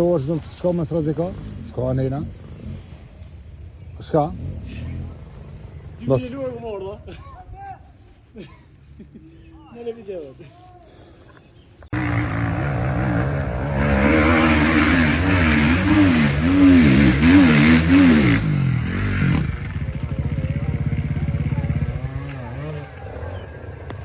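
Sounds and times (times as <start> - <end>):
motorcycle engine revving: 4.0 - 6.6, 11.8 - 24.0.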